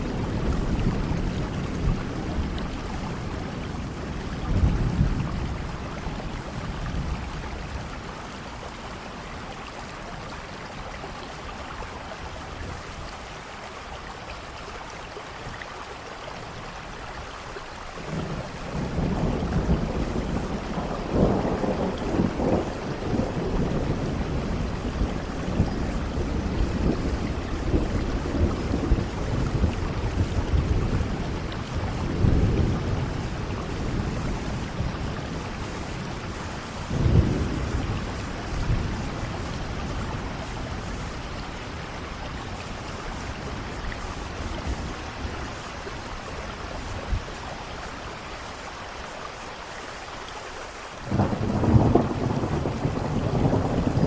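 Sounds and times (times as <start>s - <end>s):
rumbling thunder: 0.0s - 8.3s, 18.0s - 46.0s, 51.1s - 54.0s
steady rain: 0.0s - 54.0s.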